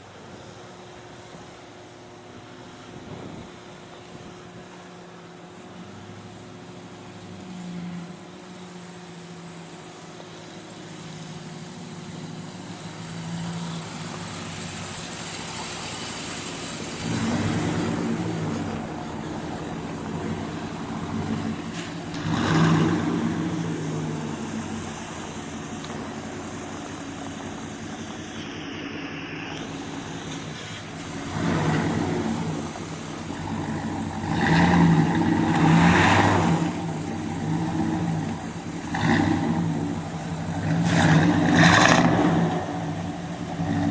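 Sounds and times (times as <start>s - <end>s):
engine running and revving: 5.6s - 43.9s.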